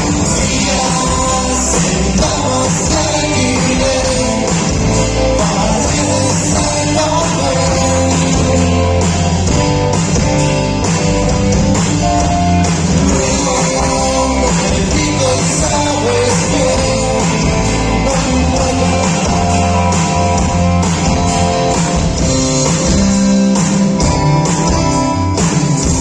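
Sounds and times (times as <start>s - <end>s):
person singing: 0.0s - 9.5s, 13.0s - 20.4s
rock band playing live: 0.0s - 26.0s.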